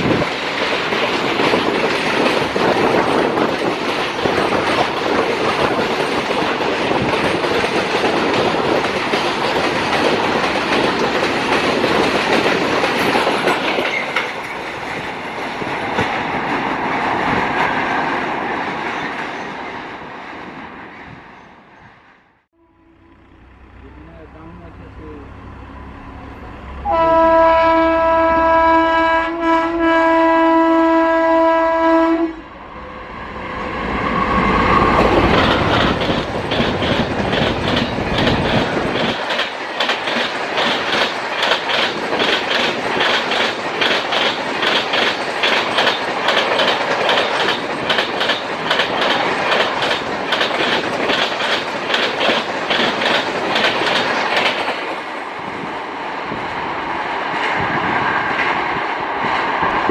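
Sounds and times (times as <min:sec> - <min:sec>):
train wheels clacking: 0:00.0 - 0:17.8, 0:34.1 - 0:55.1
train horn blast: 0:22.6 - 0:33.1.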